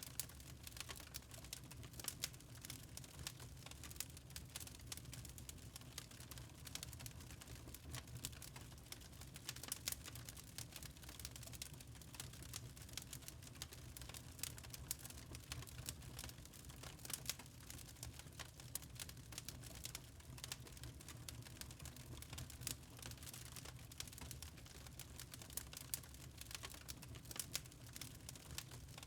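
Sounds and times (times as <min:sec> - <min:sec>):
wood fire crackling: 0:00.0 - 0:29.0.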